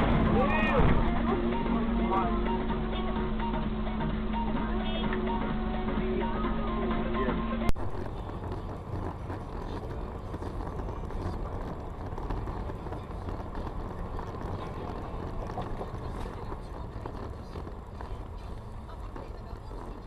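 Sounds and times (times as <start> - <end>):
car engine rumble: 0.0 - 20.0
road noise: 0.0 - 20.0.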